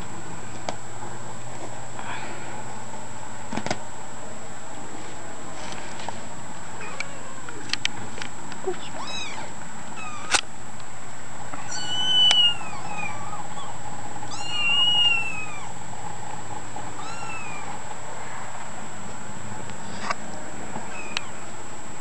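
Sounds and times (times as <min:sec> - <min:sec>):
kitten mewing: 0:06.8 - 0:07.7, 0:08.7 - 0:10.4, 0:11.6 - 0:15.8, 0:17.0 - 0:17.7, 0:20.9 - 0:21.4.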